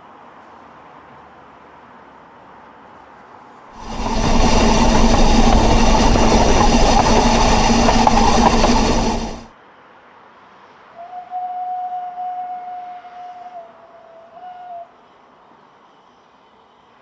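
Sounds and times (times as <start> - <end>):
steady hum: 3.8 - 9.5
steam train running: 3.8 - 9.5.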